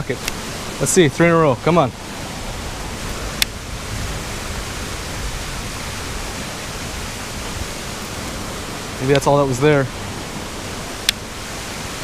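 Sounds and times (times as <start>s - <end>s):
rushing water of waterfall: 0.0s - 12.0s
sharp click: 11.0s - 11.2s.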